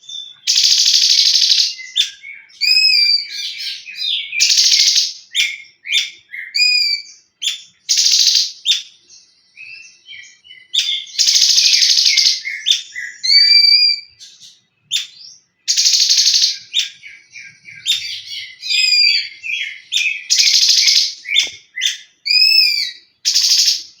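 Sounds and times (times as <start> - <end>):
songbird whistled notes and chips: 0.0 - 24.0
songbird harsh buzzy rattles: 0.5 - 1.8, 23.3 - 23.8.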